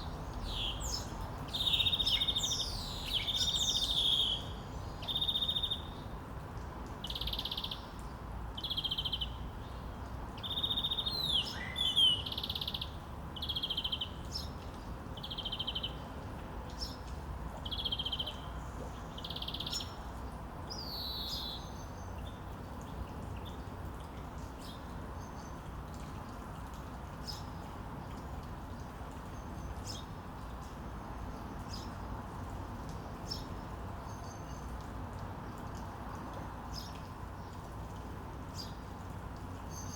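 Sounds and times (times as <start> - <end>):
outdoor background noise: 0.0 - 39.9.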